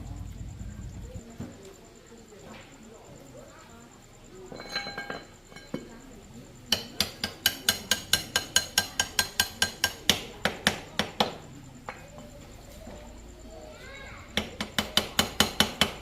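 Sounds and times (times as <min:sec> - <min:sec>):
light metal clinks: 0:04.4 - 0:10.1.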